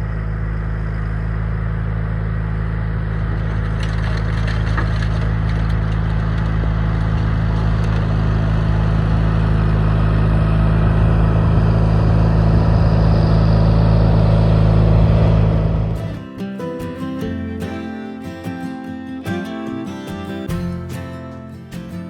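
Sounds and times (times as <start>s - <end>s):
garden tractor engine running: 0.0s - 22.0s
acoustic guitar music: 15.3s - 22.0s.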